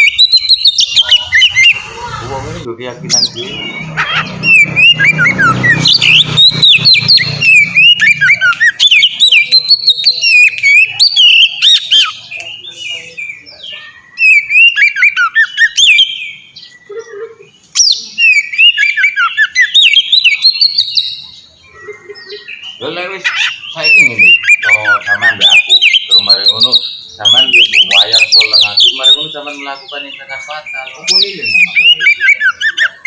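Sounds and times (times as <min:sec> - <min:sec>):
songbird singing whistled notes: 0:00.0 - 0:02.0, 0:03.1 - 0:33.0.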